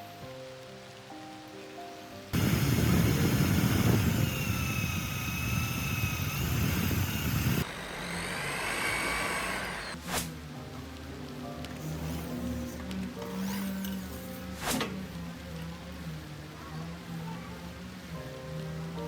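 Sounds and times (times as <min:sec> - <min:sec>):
power tool motor whine: 0:02.4 - 0:10.0.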